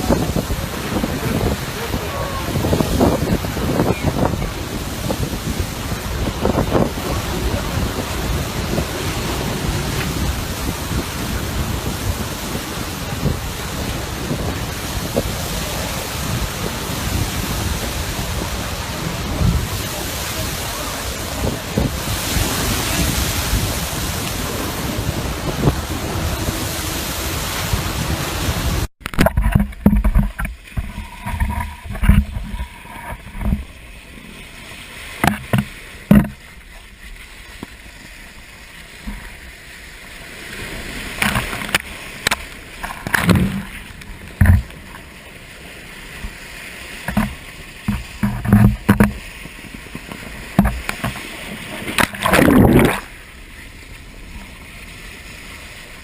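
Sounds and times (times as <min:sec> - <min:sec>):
wind buffeting microphone: 0:00.0 - 0:34.3, 0:47.1 - 0:53.1
ocean surf rushing: 0:00.0 - 0:56.0
low thumps and knocks: 0:21.4 - 0:33.7, 0:35.2 - 0:36.5, 0:44.3 - 0:45.0, 0:47.1 - 0:51.3.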